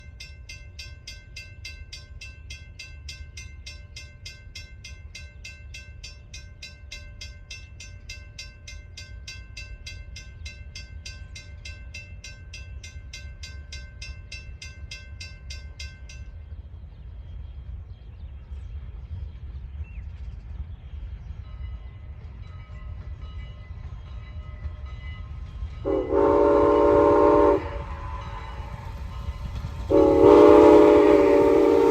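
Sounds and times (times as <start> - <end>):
steam whistle: 25.9 - 28.8, 29.9 - 31.9.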